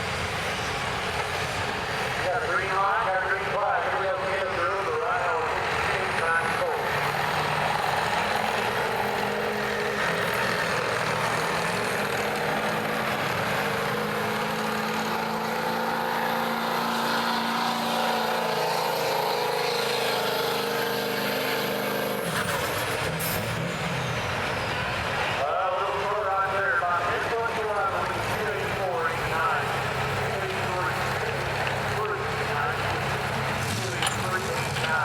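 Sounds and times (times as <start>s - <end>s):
diesel truck engine running hard: 0.0s - 35.0s.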